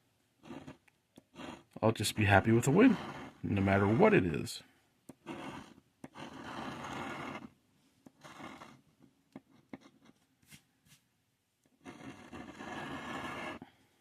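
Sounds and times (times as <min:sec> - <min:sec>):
scraping lottery ticket coating: 0:00.4 - 0:04.4, 0:05.2 - 0:07.5, 0:11.8 - 0:13.6.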